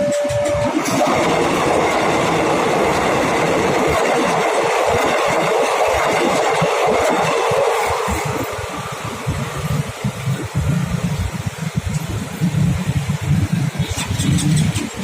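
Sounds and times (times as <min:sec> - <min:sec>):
held tone: 0:00.0 - 0:01.0
train wheels rushing on rails: 0:00.0 - 0:15.0.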